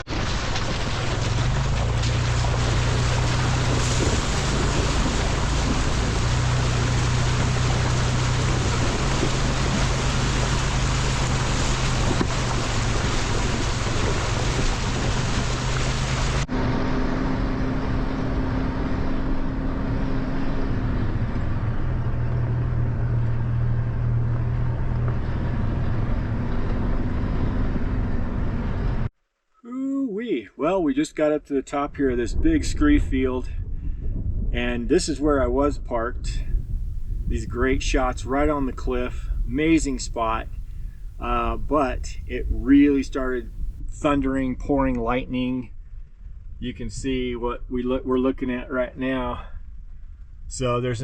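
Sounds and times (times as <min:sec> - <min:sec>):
truck engine hum: 0:00.0 - 0:29.1, 0:36.3 - 0:43.8
wind and road rush: 0:00.0 - 0:29.1, 0:32.5 - 0:34.9, 0:36.1 - 0:43.9, 0:49.6 - 0:50.5
higher hum: 0:36.4 - 0:43.8.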